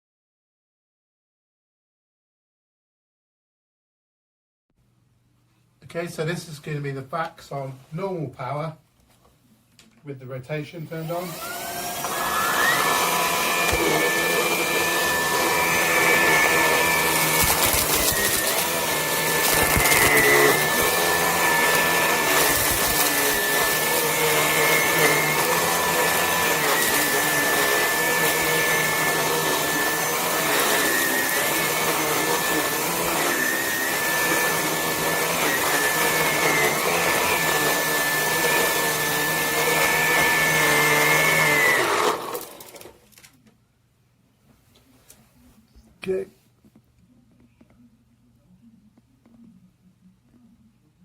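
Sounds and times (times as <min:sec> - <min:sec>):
stick vacuum running: 0:10.9 - 0:43.0.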